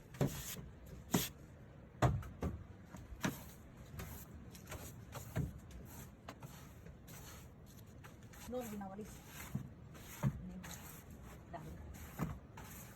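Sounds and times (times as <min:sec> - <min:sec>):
sharp scrapes and knocks: 0:03.2 - 0:12.9.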